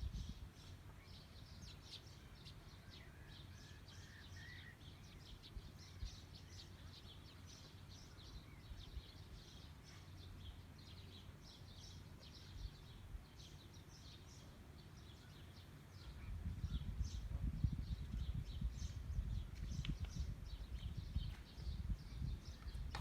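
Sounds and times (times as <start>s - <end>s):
small birds chirping: 0.0s - 23.0s
steady low rumble: 16.0s - 23.0s.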